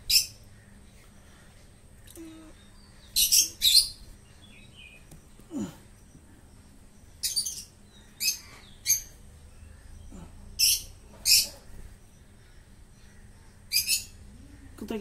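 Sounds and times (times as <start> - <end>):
faint steady background: 0.0 - 15.0
bird harsh chirps: 2.6 - 5.0, 7.1 - 10.0, 10.6 - 11.7, 13.0 - 14.2.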